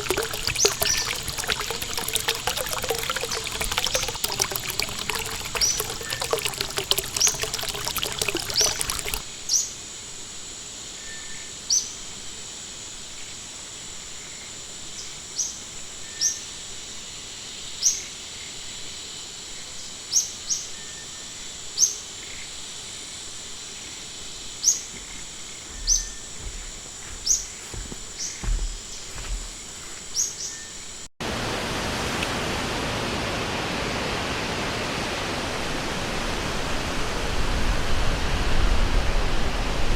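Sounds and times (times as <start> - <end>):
rush of flowing water: 0.0 - 9.2, 31.2 - 39.9
stream water trickling: 0.0 - 9.3, 23.8 - 30.5.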